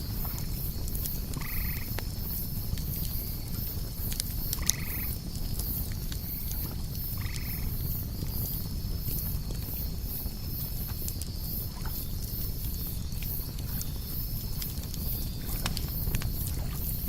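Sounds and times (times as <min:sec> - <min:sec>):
campfire crackling: 0:00.0 - 0:17.0
crickets chirring: 0:00.0 - 0:17.0.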